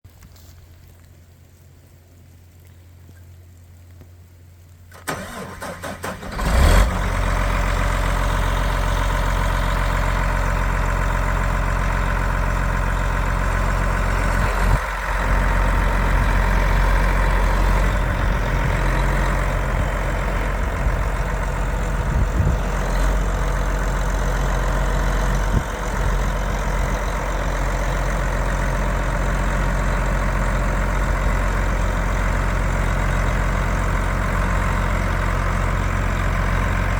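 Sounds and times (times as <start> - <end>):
diesel engine idling: 4.9 - 36.9
starter motor cranking: 5.0 - 7.0.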